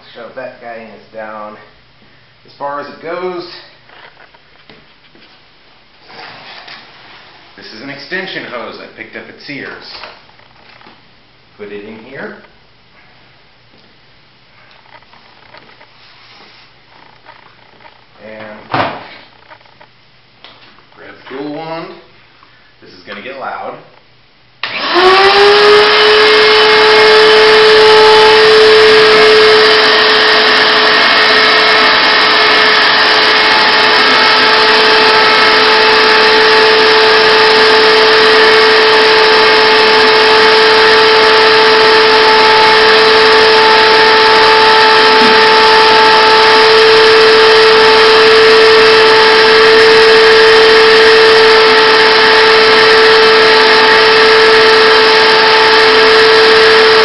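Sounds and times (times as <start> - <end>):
shop vac motor whining: 24.6 - 57.0.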